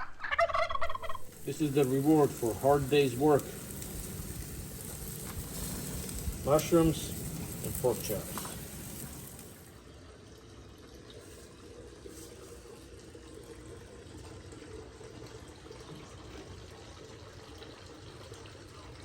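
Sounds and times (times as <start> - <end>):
meat and mushrooms sizzling in a pan: 1.2 - 9.8.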